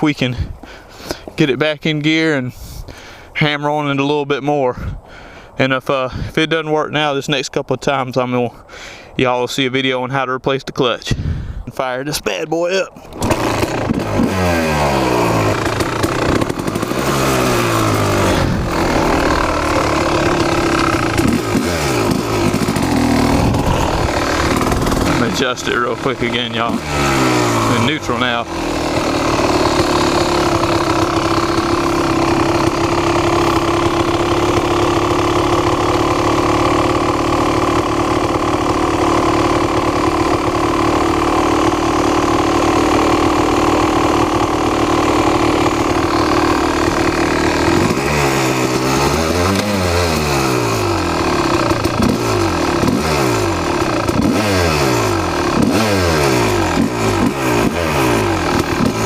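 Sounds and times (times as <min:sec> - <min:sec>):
dirt bike engine idling and revving: 0:13.0 - 0:59.0.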